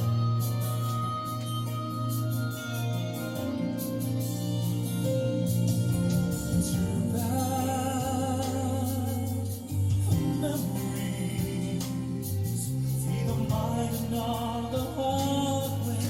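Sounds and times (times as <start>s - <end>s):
sustained instrumental chords: 0.0s - 16.0s
person singing: 4.4s - 16.0s.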